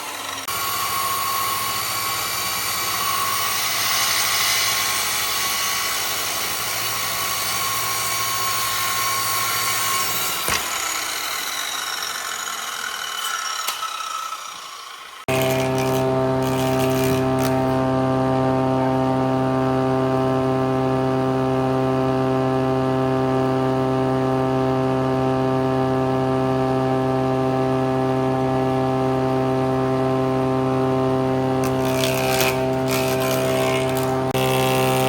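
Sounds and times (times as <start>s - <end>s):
machine motor humming: 14.4s - 35.0s.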